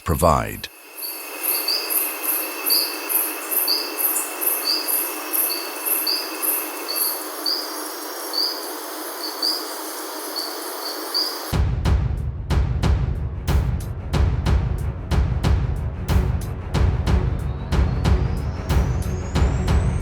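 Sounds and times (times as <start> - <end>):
bird chirping: 0.0 - 11.5
even hiss: 0.0 - 11.6
high insect trill: 0.7 - 11.6
thin insect whine: 0.7 - 11.6.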